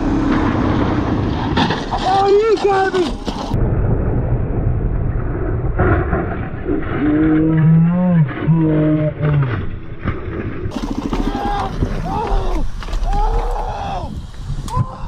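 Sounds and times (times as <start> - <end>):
vehicle engine and road rumble: 0.0 - 14.4
person shouting: 11.2 - 15.0.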